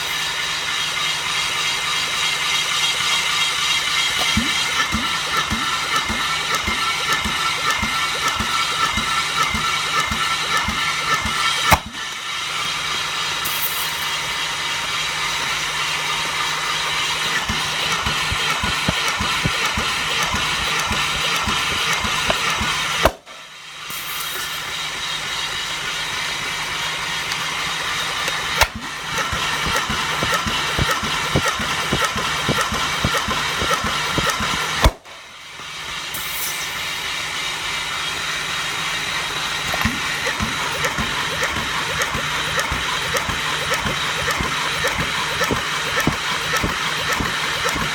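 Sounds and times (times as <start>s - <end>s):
starter motor cranking engine: 0.0s - 47.9s
starter click: 4.0s - 12.8s, 17.3s - 23.4s, 28.2s - 35.2s, 39.6s - 47.9s.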